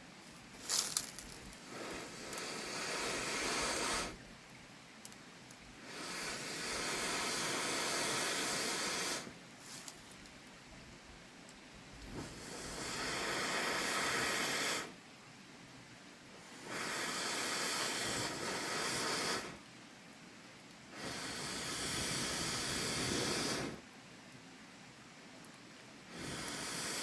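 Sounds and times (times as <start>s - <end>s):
hissing rushes of air: 0.6s - 4.2s, 5.8s - 9.9s, 12.1s - 15.0s, 16.4s - 19.6s, 20.9s - 23.8s, 26.1s - 27.0s.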